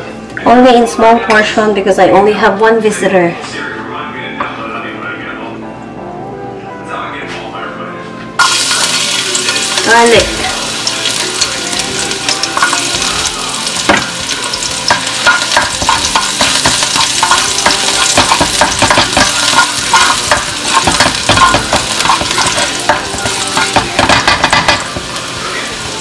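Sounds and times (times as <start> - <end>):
garlic sizzling in hot oil: 8.4 - 26.0
spatula scraping and tapping pan: 12.3 - 13.2, 13.9 - 25.2.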